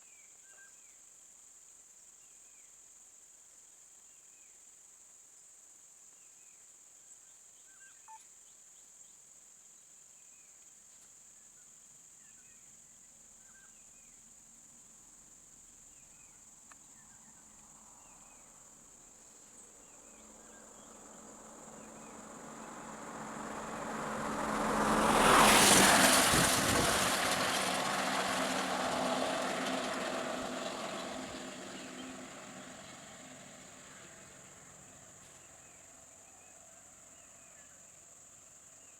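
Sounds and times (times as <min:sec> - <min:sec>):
faint chirps: 0:07.6 - 0:08.3
high insect drone: 0:13.4 - 0:38.9
motor vehicle passing by: 0:19.8 - 0:37.4.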